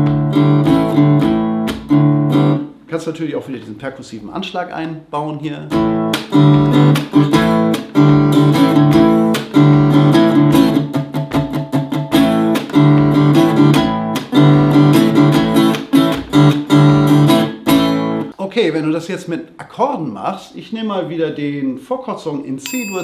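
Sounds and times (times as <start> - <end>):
acoustic guitar strumming: 0.0 - 2.7, 5.7 - 18.3
muted percussive guitar strokes: 5.7 - 18.2.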